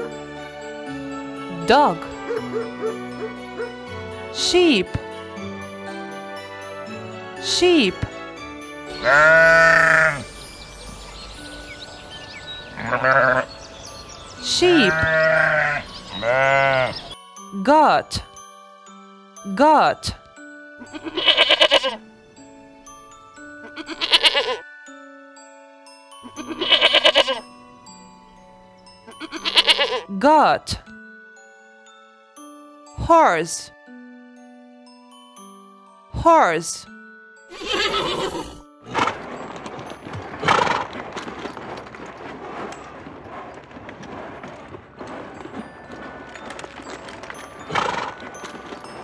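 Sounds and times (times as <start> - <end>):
soft background music: 0.0 - 49.0
goat bleating: 9.0 - 10.2, 12.8 - 13.5, 14.7 - 17.1, 20.8 - 22.0, 23.7 - 24.6, 26.3 - 27.4, 29.2 - 30.0, 37.5 - 38.6
horse neighing: 9.0 - 10.2, 12.8 - 13.5, 14.7 - 17.1, 21.0 - 22.0, 23.7 - 24.6, 26.4 - 27.4, 29.2 - 30.0, 37.5 - 39.3, 40.4 - 41.0, 47.7 - 48.2
steady low rustle: 39.1 - 49.0.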